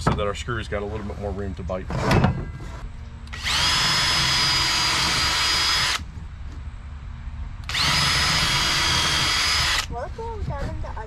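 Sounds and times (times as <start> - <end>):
power drill whining: 3.3 - 6.0, 7.6 - 9.9.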